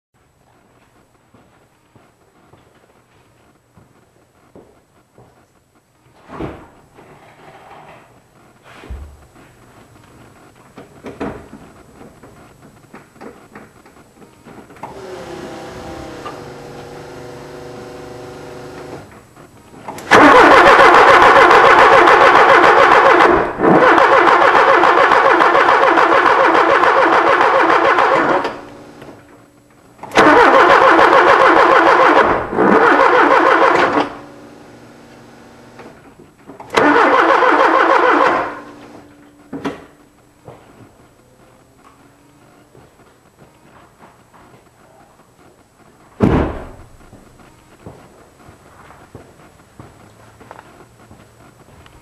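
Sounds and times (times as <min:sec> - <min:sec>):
car engine cranking without starting: 0:14.8 - 0:19.1, 0:19.9 - 0:29.2, 0:30.0 - 0:35.9, 0:36.6 - 0:39.1.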